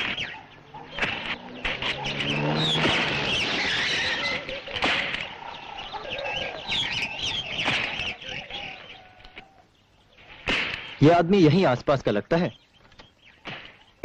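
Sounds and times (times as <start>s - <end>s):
sharp crack: 0.0s - 5.4s, 7.4s - 8.2s, 10.4s - 11.3s, 13.4s - 14.0s
many birds chirping: 0.0s - 14.0s.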